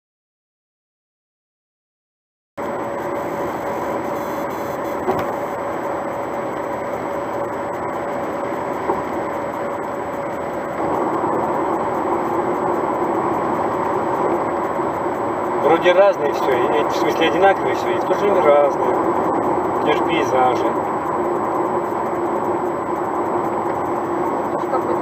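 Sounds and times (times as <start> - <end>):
car engine hum: 2.6 - 25.0.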